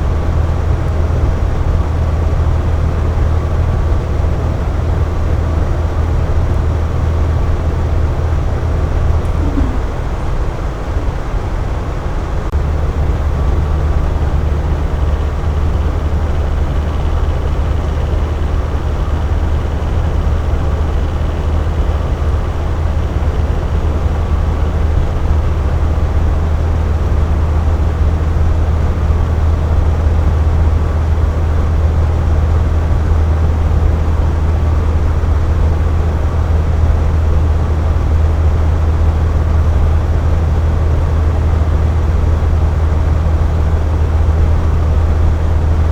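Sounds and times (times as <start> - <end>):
air conditioner humming: 6.2 - 12.5.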